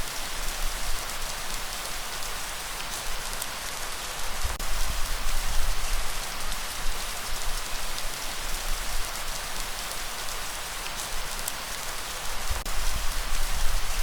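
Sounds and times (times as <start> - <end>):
steady rain falling: 0.0 - 14.0
sharp drip-like tick: 10.8 - 11.6.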